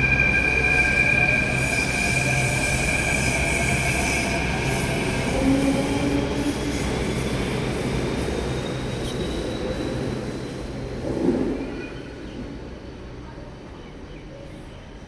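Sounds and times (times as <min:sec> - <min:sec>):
high wheel squeal: 0:00.0 - 0:10.5
train rumbling: 0:00.0 - 0:15.0.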